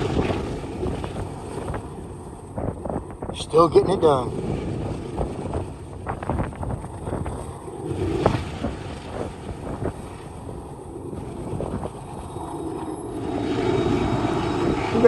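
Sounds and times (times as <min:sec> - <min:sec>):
wind buffeting microphone: 0:00.0 - 0:15.0
diesel locomotives rumbling: 0:07.7 - 0:15.0.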